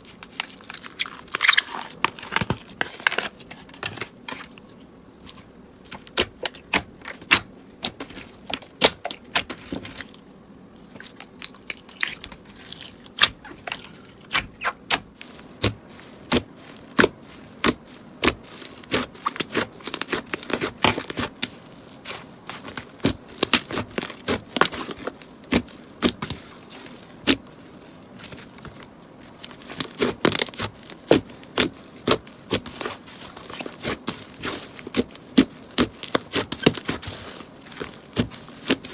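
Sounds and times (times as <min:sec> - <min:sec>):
slime crackling and popping: 0:00.1 - 0:03.3, 0:10.8 - 0:27.6, 0:28.2 - 0:38.9.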